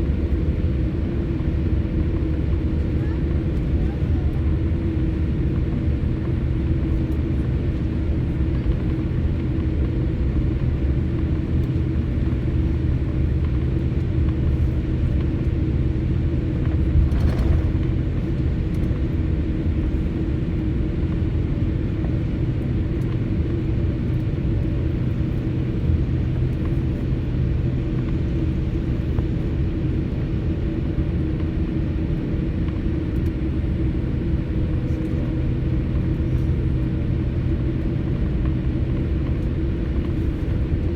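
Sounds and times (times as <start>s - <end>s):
airliner cabin hum: 0.0s - 40.9s
engine and air-system tones: 14.5s - 20.6s.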